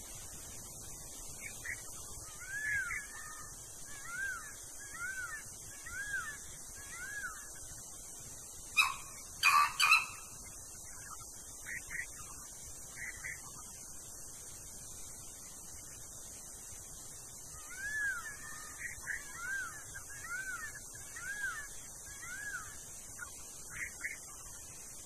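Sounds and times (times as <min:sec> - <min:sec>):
bird whistling: 0:08.8 - 0:10.3.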